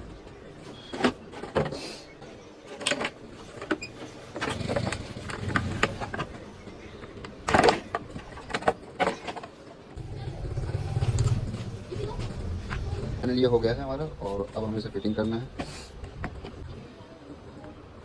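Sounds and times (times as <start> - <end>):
plastic panels and tools knocking: 2.7 - 9.6.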